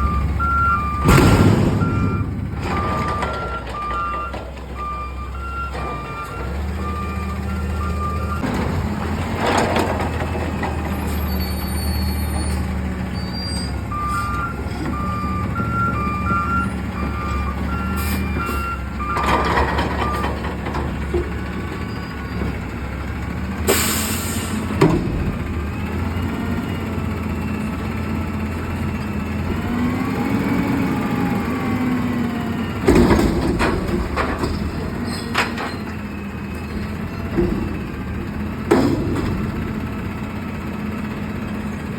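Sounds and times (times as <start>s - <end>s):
reversing beeps: 0.0s - 8.4s, 13.2s - 20.4s
garbage truck diesel engine: 0.0s - 41.9s
loud bang: 1.0s - 3.3s
air brake hiss: 23.7s - 24.7s.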